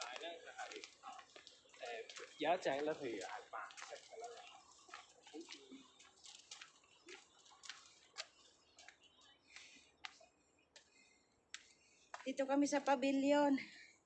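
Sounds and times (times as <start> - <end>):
faint irregular clicks: 3.7 - 12.3.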